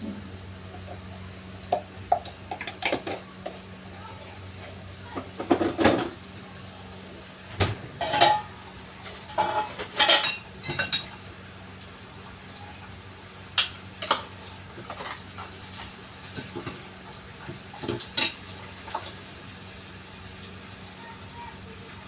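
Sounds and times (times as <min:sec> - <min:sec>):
utensils clinking against dishes: 0:01.7 - 0:06.2, 0:07.6 - 0:11.2, 0:13.6 - 0:19.3.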